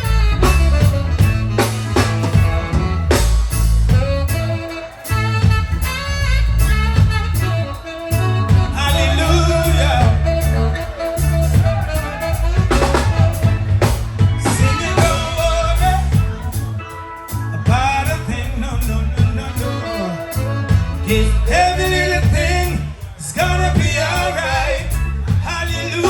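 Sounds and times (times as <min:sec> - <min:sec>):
reggae band playing: 0:00.0 - 0:26.0
person singing: 0:08.5 - 0:26.0.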